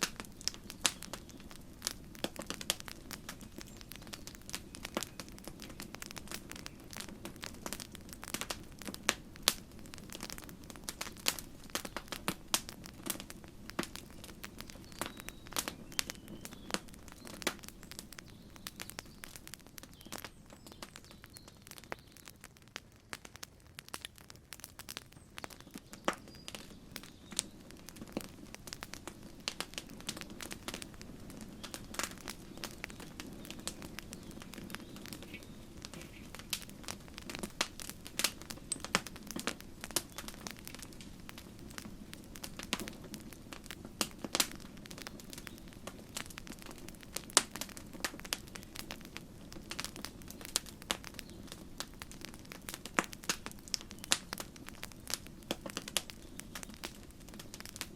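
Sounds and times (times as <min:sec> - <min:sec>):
campfire crackling and popping: 0:00.0 - 0:57.9.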